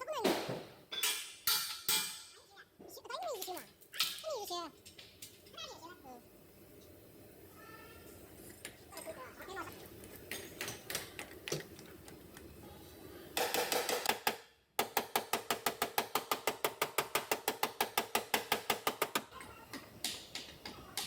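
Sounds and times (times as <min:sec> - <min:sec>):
rapid tapping on sheet metal: 0:13.4 - 0:19.3.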